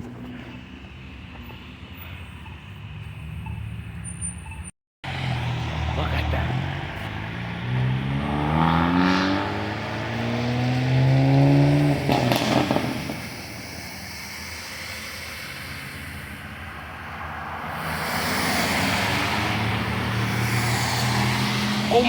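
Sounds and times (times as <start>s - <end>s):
car engine accelerating: 5.0s - 14.6s.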